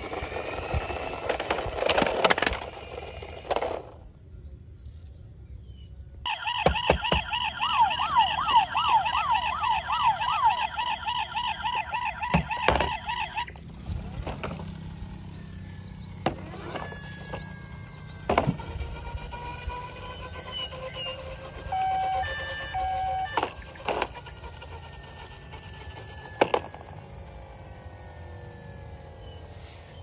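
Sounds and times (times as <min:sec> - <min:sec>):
toy siren warbling: 0:00.0 - 0:03.8, 0:06.3 - 0:30.0
plastic toy cars clicking: 0:00.0 - 0:04.0, 0:16.3 - 0:27.1
electronic toy beeps: 0:06.3 - 0:13.6, 0:15.7 - 0:27.5.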